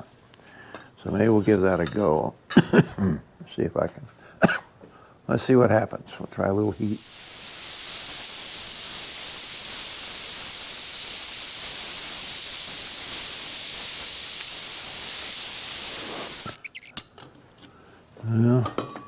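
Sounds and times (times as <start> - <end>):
gas torch hissing: 6.6 - 16.9.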